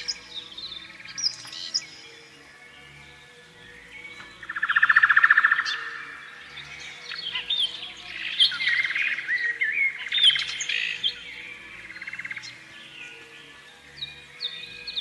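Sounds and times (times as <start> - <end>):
canary singing: 3.7 - 15.0.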